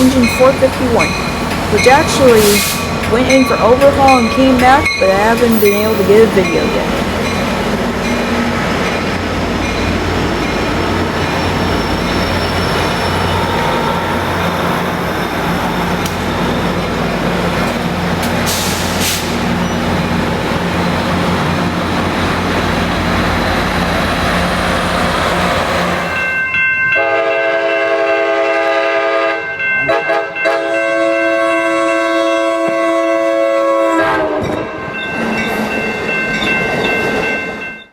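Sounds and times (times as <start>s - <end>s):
diesel locomotive running by: 0.0s - 37.8s
train horn chord: 27.0s - 34.5s.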